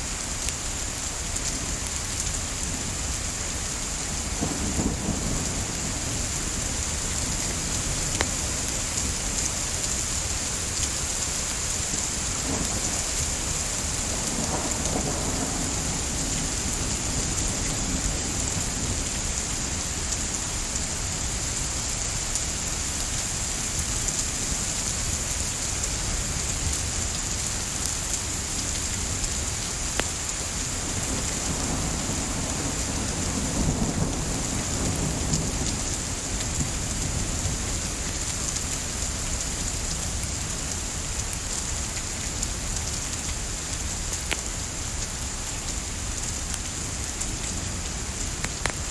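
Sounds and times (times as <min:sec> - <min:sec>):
steady rain: 0:00.0 - 0:48.9
wood fire crackling: 0:05.6 - 0:14.2, 0:25.5 - 0:31.5, 0:37.8 - 0:48.9.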